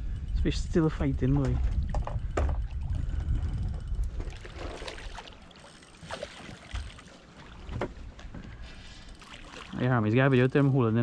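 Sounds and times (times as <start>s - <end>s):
wind rumbling on microphone: 0.0s - 5.5s.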